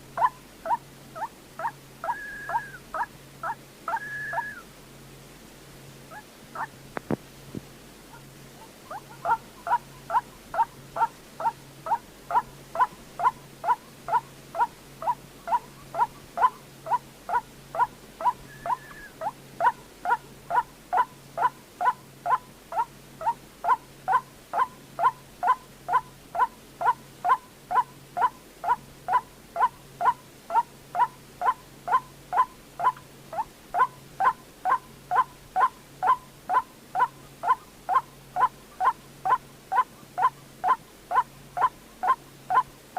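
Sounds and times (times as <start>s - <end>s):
waterhen calling: 0.2s - 4.7s, 6.1s - 6.8s, 8.1s - 42.7s.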